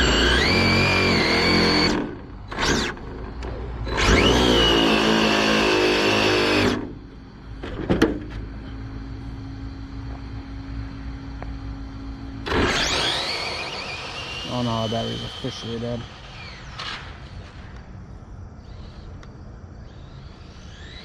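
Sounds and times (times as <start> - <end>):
electric motor whining: 0.0 - 7.1, 12.0 - 17.4, 18.6 - 21.0
faint steady hum: 0.0 - 21.0.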